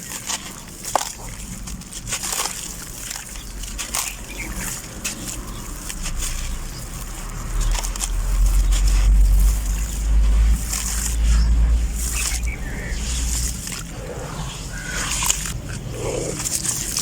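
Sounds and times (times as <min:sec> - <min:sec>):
gritty crackles in water: 0:00.0 - 0:17.0
water sloshing: 0:00.0 - 0:17.0
low rumble: 0:04.5 - 0:17.0.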